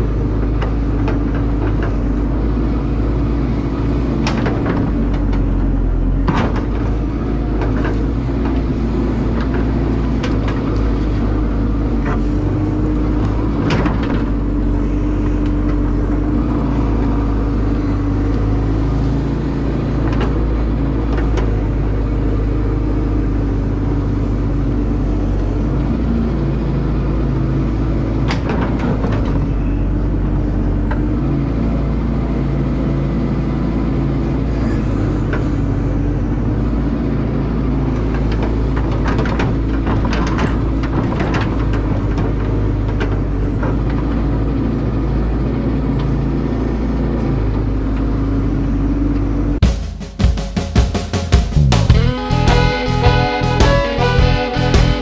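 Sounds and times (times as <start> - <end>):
excavator diesel engine running: 0.0 - 49.6, 51.6 - 55.0.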